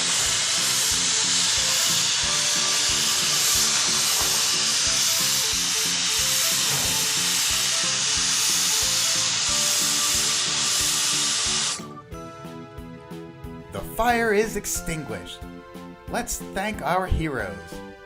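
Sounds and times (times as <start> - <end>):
fire hose spraying hiss: 0.0 - 11.9
background music with beat: 0.0 - 18.0.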